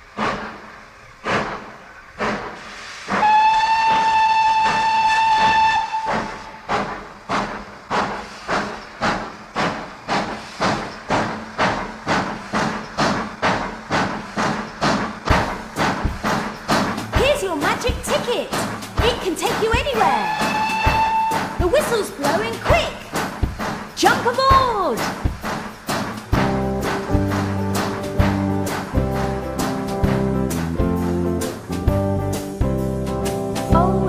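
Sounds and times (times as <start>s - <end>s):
steam locomotive exhaust chuffs: 0.0s - 34.0s
steam locomotive whistle: 2.6s - 6.7s, 19.8s - 22.6s.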